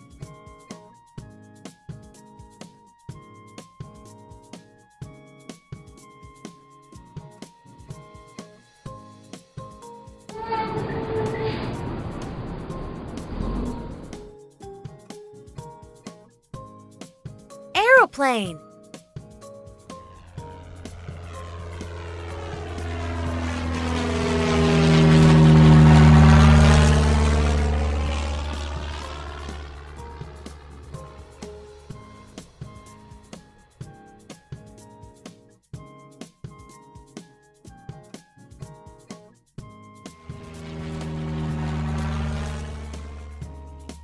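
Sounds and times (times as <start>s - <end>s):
aircraft engine: 7.4s - 14.3s, 19.4s - 35.4s, 39.8s - 44.0s
propeller plane flying past: 20.0s - 33.1s, 40.1s - 44.0s.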